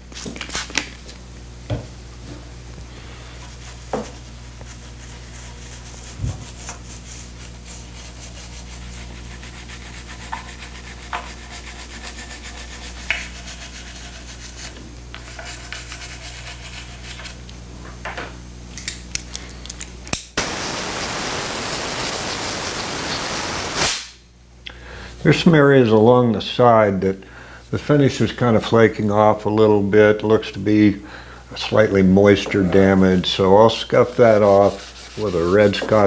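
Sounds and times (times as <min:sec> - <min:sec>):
brush scrubbing wet wood: 0:02.9 - 0:17.4, 0:31.6 - 0:36.0
air blower rushing: 0:20.4 - 0:24.2.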